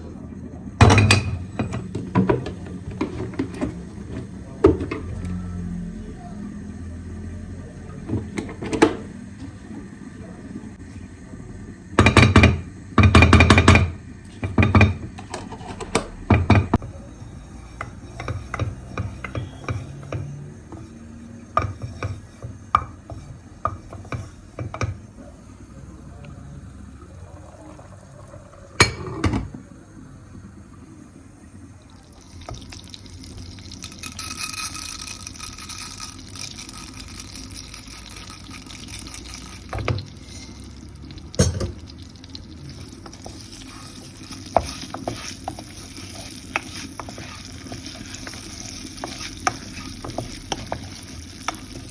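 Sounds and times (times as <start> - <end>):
utensils clicking and knocking: 17.5 - 25.0, 32.4 - 51.9.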